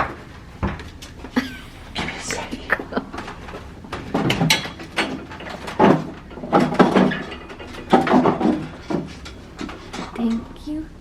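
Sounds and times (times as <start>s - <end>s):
door lock and handle rattling: 3.1s - 10.5s.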